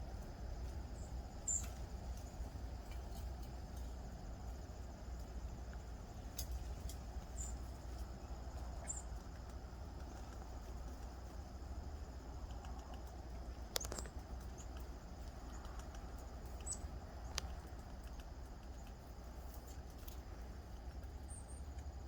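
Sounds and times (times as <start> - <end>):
faint high hum: 0.0 - 22.0
steady low rumble: 0.0 - 22.0
bird chirps: 1.0 - 1.8, 7.3 - 7.6, 8.8 - 9.1, 16.5 - 17.4
small clicks: 12.4 - 21.0.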